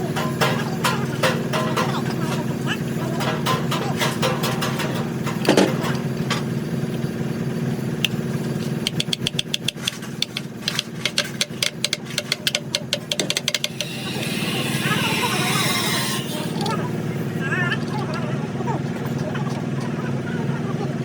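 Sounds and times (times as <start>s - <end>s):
sharp metallic taps: 8.8s - 16.7s
machine hum: 10.4s - 17.4s.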